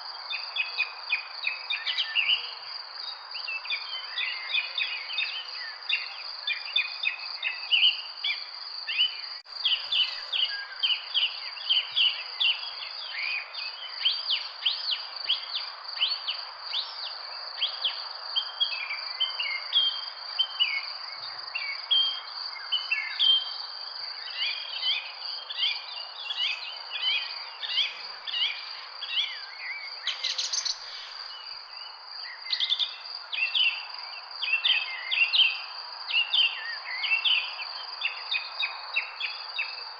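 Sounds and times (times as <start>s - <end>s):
birds chirping: 25.6s - 33.8s.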